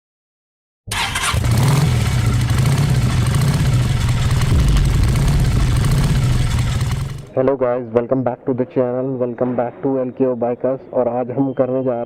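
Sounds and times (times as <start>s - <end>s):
scooter engine idling: 0.9s - 7.3s.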